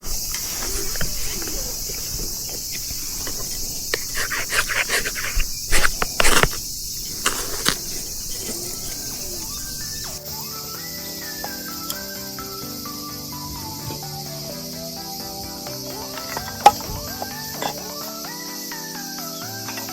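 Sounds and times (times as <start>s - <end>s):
crickets chirping: 0.0s - 19.9s
sharp clicks and scrapes: 0.1s - 10.2s.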